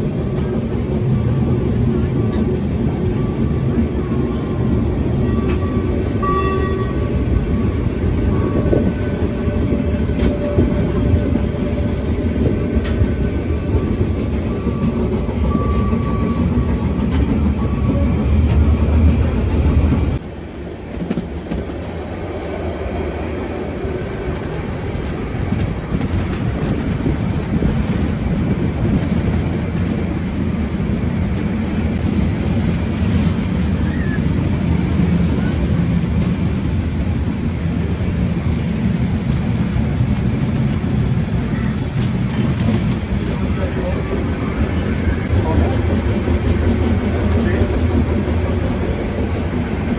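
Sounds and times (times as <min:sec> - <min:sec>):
steam train rumbling: 0:00.0 - 0:49.9
train wheels clickety-clack: 0:00.0 - 0:49.9.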